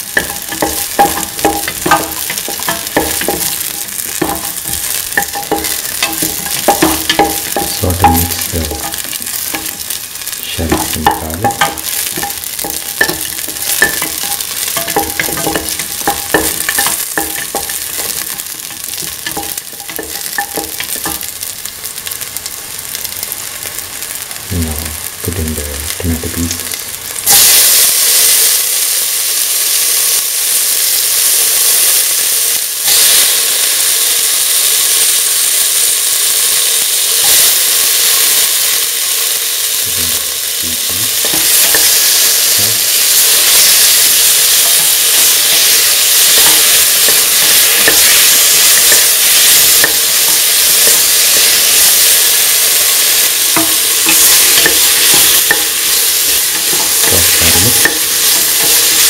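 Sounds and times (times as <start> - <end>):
vegetables sizzling in hot oil: 0.0 - 59.0
spatula scraping a pan: 44.6 - 59.0.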